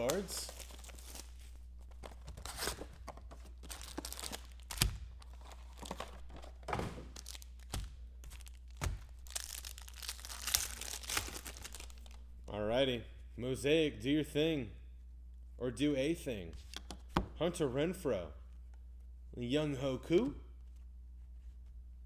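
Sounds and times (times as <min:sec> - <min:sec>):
plastic wrapper crinkling and tearing: 0:00.0 - 0:12.2.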